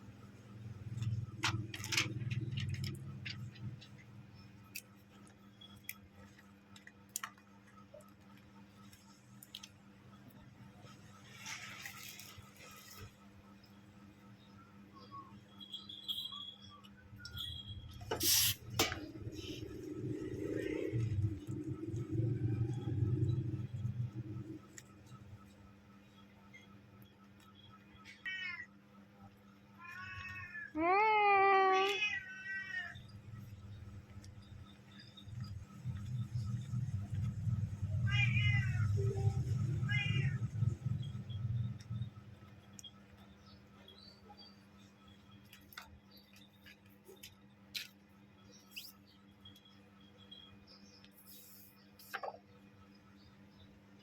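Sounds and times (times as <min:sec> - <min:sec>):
low steady hum: 0:00.0 - 0:54.0
cat meowing: 0:29.8 - 0:33.0, 0:38.0 - 0:40.6.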